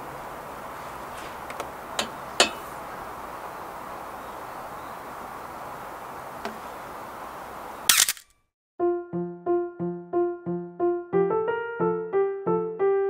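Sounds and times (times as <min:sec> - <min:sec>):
outdoor hiss: 0:00.0 - 0:08.2
metal lid clanking: 0:02.0 - 0:02.7
metal lid clattering: 0:02.0 - 0:02.7.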